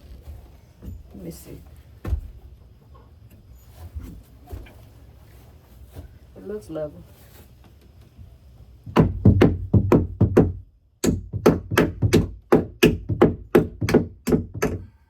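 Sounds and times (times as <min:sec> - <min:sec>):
hammer driving nails into wood: 0:08.9 - 0:14.9.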